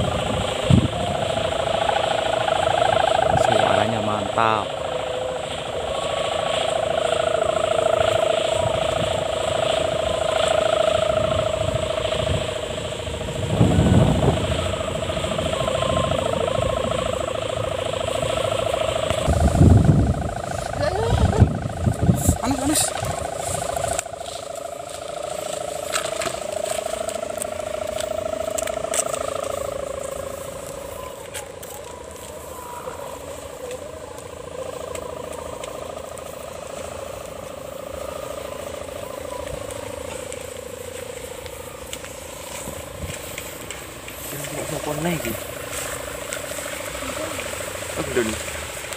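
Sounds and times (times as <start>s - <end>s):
kite hummer droning: 0.0s - 48.9s
low rumble: 0.0s - 48.9s.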